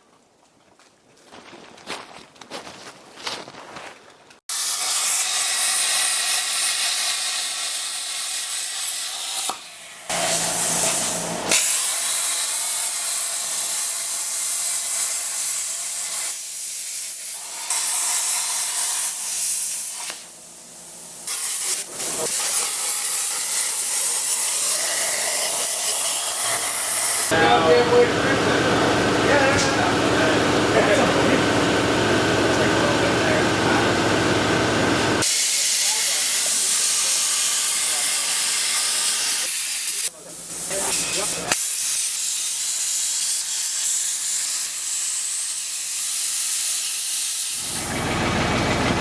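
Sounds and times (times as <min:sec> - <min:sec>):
loud steady hissing: 0:04.5 - 0:31.4, 0:35.2 - 0:47.9.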